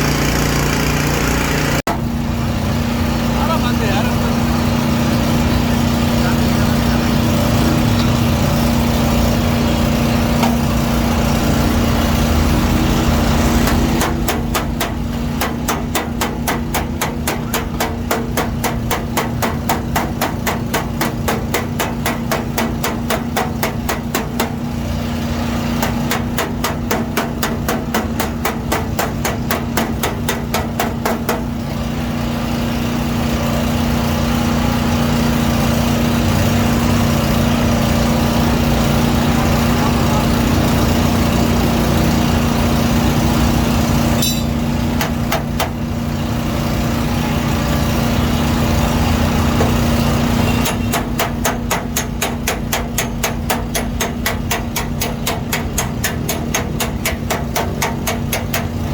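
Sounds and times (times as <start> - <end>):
machine hum: 0.0 - 15.5
hammer tapping sheet metal: 13.2 - 24.7, 25.7 - 31.6, 44.1 - 45.9, 50.5 - 58.9.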